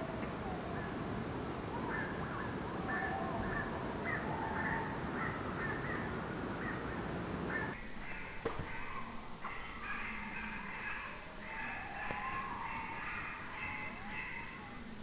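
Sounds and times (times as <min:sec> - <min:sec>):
birds calling harshly: 0:07.5 - 0:15.0
higher bird calls: 0:07.5 - 0:15.0.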